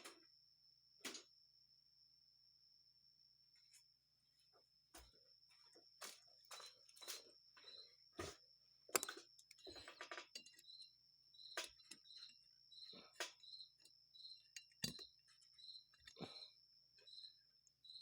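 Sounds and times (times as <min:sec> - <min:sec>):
screwdriver tapping metal parts: 0:08.9 - 0:12.5, 0:13.1 - 0:16.2.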